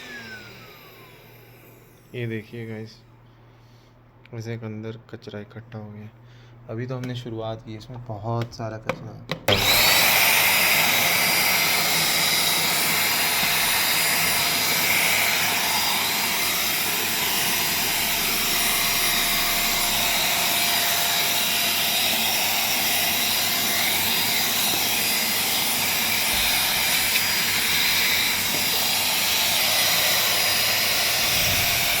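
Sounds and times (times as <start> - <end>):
handheld vacuum cleaner running: 0.0 - 2.1, 9.5 - 32.0.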